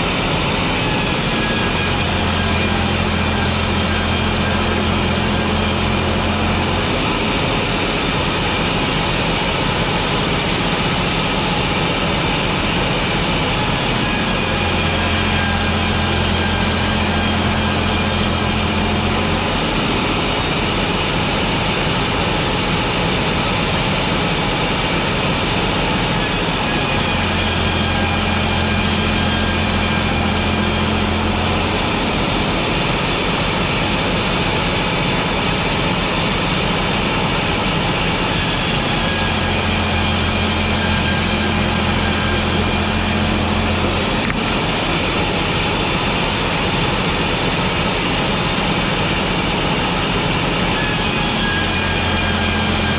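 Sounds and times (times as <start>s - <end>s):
sawmill machinery running: 0.0s - 52.9s.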